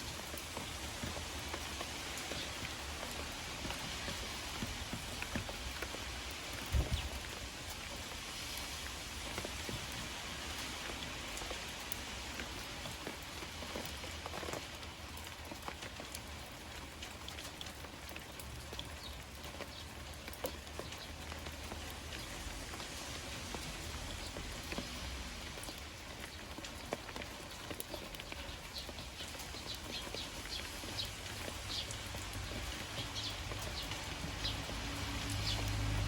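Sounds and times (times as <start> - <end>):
rain pattering: 0.0 - 36.0
low thump: 6.7 - 7.2.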